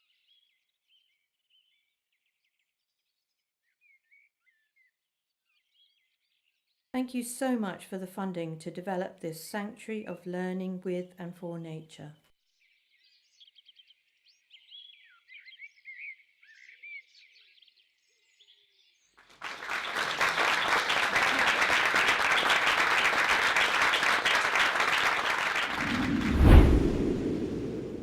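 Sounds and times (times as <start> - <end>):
small birds chirping: 12.6 - 19.2.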